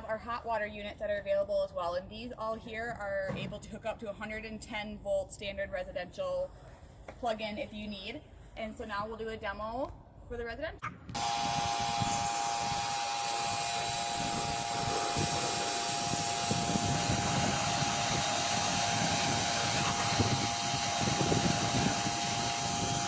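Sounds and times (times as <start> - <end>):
motor pump whine: 11.1 - 23.0
pressure washer spraying water: 11.1 - 23.0.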